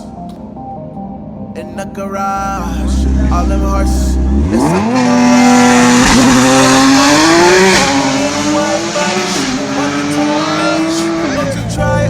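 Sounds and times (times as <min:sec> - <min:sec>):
car engine revving hard: 0:02.8 - 0:11.7.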